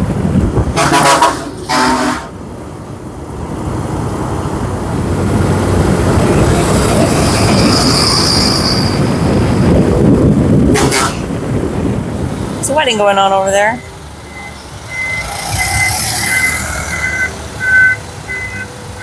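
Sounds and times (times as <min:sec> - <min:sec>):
rushing air: 0:00.0 - 0:12.8
rumble of traffic engines: 0:00.0 - 0:19.0
vehicle horn toot: 0:00.8 - 0:02.3, 0:10.7 - 0:11.3.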